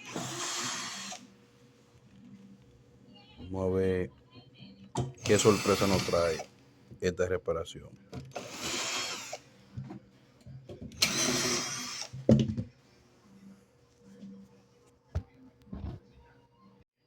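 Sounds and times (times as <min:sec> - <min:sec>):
cordless drill running: 0:00.0 - 0:01.3, 0:05.2 - 0:06.5, 0:08.3 - 0:09.4, 0:11.0 - 0:12.2.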